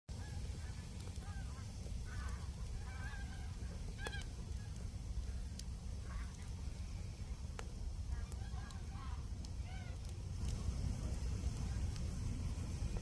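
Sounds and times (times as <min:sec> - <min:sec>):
geese honking: 0:00.1 - 0:06.8, 0:08.1 - 0:10.1
steady low rumble: 0:00.1 - 0:13.0.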